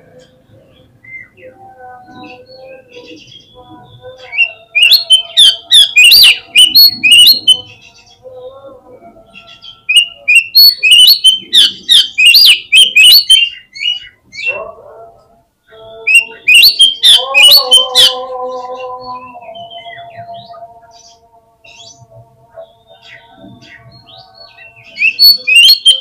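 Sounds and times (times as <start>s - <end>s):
bird calling in rapid sharp notes: 4.4s - 7.7s, 9.9s - 14.5s, 16.1s - 18.2s, 24.9s - 26.0s.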